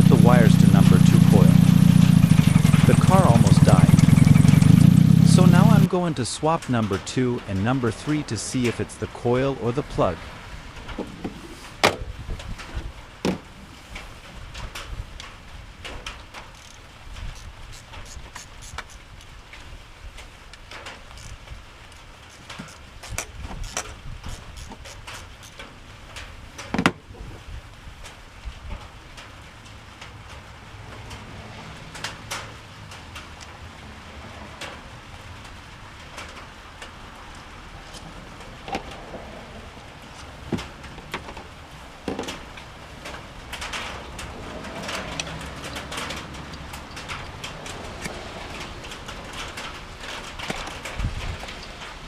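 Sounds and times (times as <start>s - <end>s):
low rumble: 0.0s - 5.9s
rain falling: 0.0s - 18.4s, 19.0s - 24.2s, 24.8s - 52.0s
sharp clicks and knocks: 40.1s - 51.9s.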